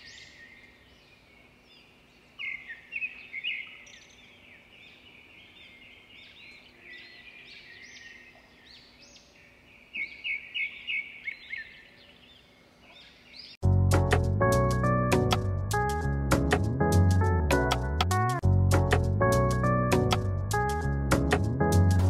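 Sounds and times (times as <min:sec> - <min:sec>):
birds chirping and singing: 0:00.0 - 0:13.6.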